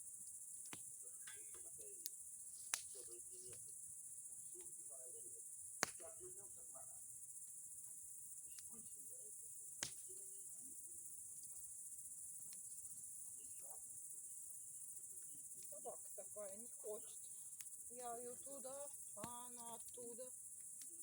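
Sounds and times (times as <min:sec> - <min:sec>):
crickets chirring: 0:00.0 - 0:21.0
bonfire popping: 0:00.6 - 0:06.9, 0:07.7 - 0:21.0.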